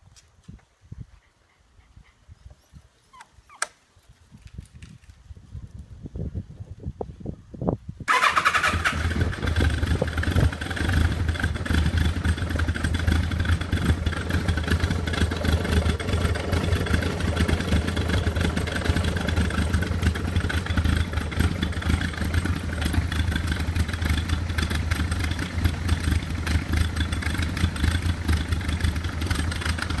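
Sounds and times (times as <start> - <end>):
electric starter cranking: 8.1 - 10.0
motorcycle engine idling: 8.1 - 30.0.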